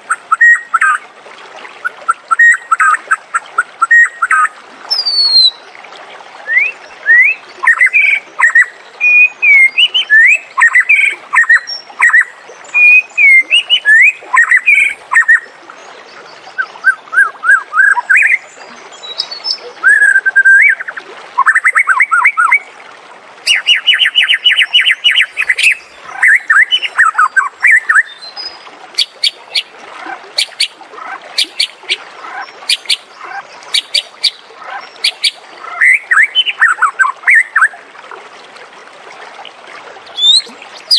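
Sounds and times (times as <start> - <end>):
bird singing whistled phrases: 0.3 - 1.0, 3.8 - 5.6, 6.4 - 15.4, 16.6 - 18.4, 19.0 - 22.6, 23.5 - 28.4, 40.2 - 40.9.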